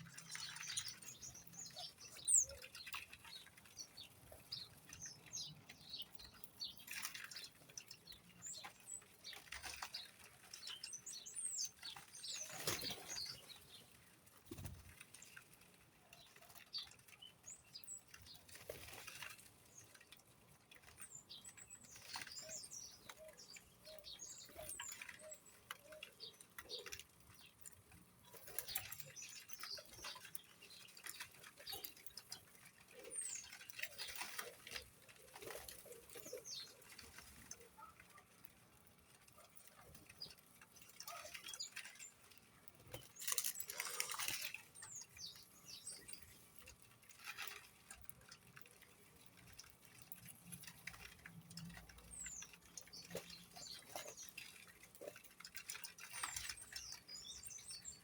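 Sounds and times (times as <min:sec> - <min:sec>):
birds chirping: 0:00.0 - 0:58.0
fluttering wingbeats: 0:08.5 - 0:16.7.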